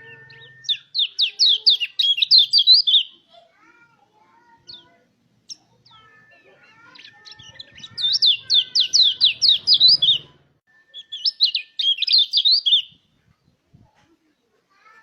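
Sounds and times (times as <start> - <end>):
bird singing rapid high notes: 0.0 - 3.2, 4.4 - 13.0
faint bird chirps: 0.0 - 3.4, 4.2 - 14.6.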